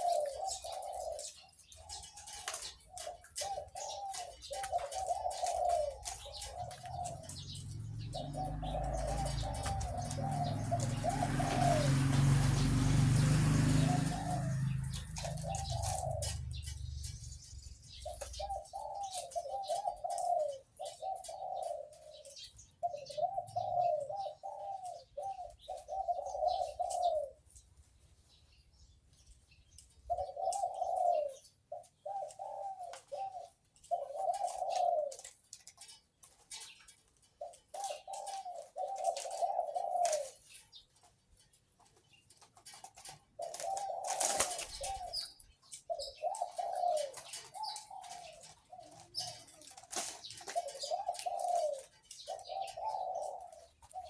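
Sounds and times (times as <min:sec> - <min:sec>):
dove cooing: 0:00.0 - 0:27.6, 0:29.8 - 0:54.0
birds chirping: 0:00.0 - 0:54.0.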